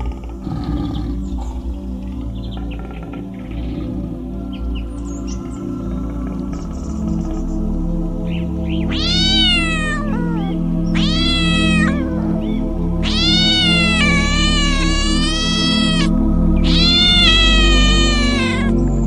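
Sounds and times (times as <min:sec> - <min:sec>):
background music with low drone: 0:00.0 - 0:19.0
cat meowing: 0:08.9 - 0:18.8.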